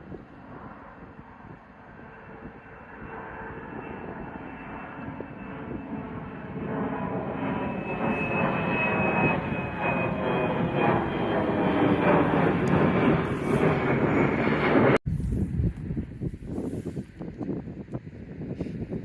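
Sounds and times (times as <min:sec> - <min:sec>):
jet engines roaring at takeoff: 0:00.0 - 0:15.0
high jet engine whine: 0:00.0 - 0:19.0.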